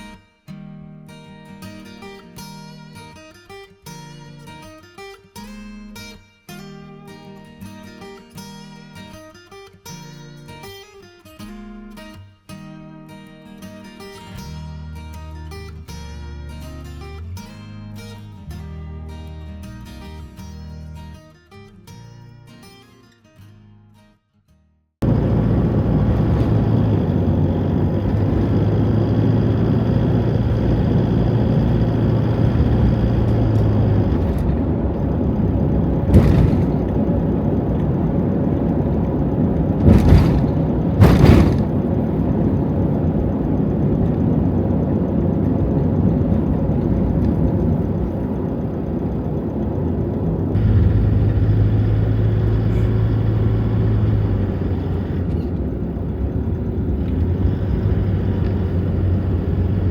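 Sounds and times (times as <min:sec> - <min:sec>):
low engine hum: 0:25.0 - 0:59.9
road noise inside van: 0:25.0 - 0:59.9.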